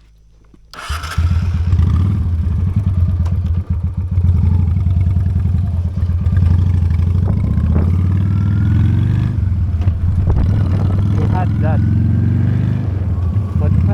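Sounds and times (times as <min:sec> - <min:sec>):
motorcycle engine rumbling: 0:00.0 - 0:13.9.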